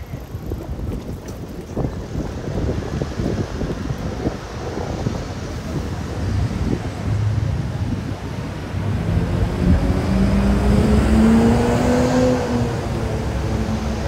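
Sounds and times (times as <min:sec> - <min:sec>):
low traffic rumble: 0:00.0 - 0:14.0
vehicle engine accelerating: 0:05.8 - 0:14.0.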